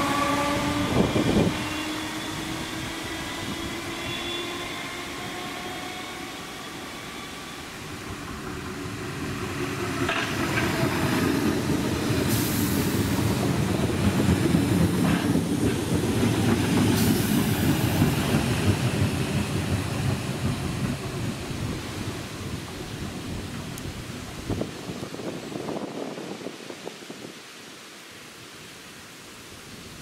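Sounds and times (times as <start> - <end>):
train wheels rumbling on rails: 0.0 - 26.8
clatter over rail joints: 10.0 - 11.3.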